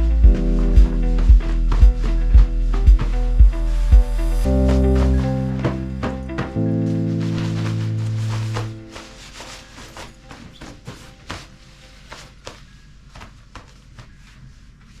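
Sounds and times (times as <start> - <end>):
held music chord: 0.0 - 10.3
footsteps crunching through snow: 4.0 - 12.8.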